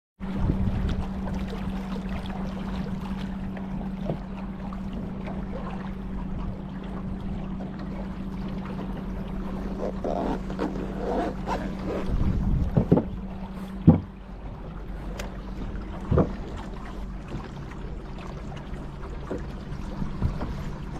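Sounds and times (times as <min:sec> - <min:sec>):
wind buffeting microphone: 0:00.2 - 0:01.9, 0:11.4 - 0:14.1
boat engine drone: 0:00.2 - 0:20.9
water splashes: 0:00.2 - 0:20.9.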